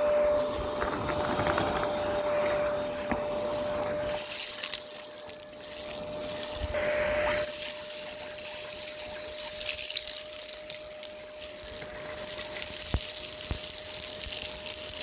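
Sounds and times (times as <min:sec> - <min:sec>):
debris crackling in vacuum: 0:00.0 - 0:15.0
vacuum cleaner running: 0:00.0 - 0:15.0.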